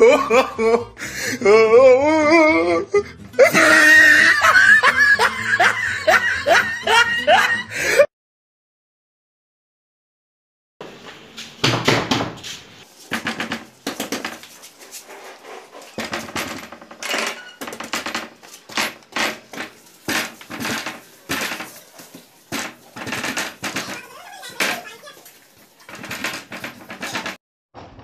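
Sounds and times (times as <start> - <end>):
fist banging on wooden door: 11.6 - 12.4.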